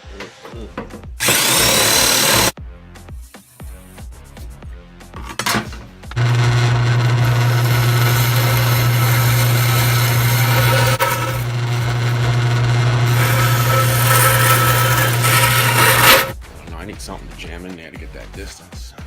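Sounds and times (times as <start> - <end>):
power tool cutting sheet metal: 1.2 - 2.6, 6.2 - 16.4.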